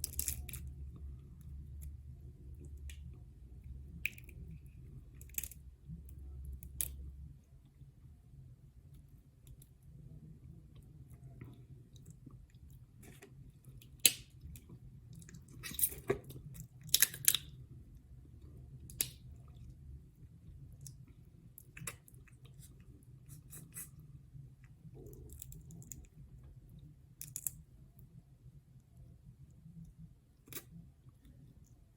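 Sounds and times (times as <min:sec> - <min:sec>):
shell cracking: 0:16.8 - 0:17.5.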